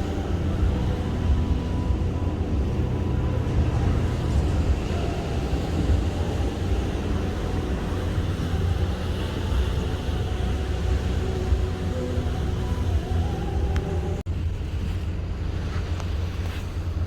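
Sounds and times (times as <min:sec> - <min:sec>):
ship rumbling at sea: 0:00.0 - 0:17.0
wind noise: 0:00.0 - 0:17.0
wind whistling: 0:00.0 - 0:17.0.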